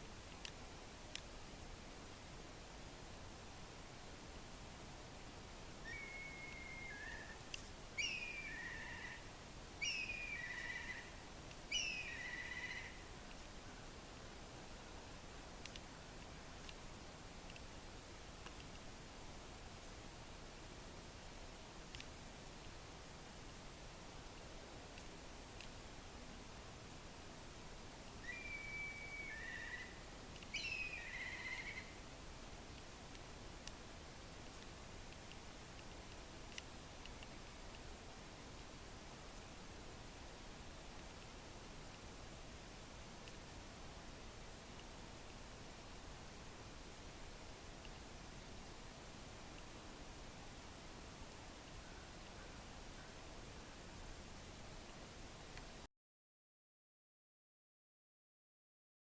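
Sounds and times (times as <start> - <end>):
faint outdoor hiss: 0.0 - 55.9
bird calling: 5.8 - 13.1, 28.2 - 32.0.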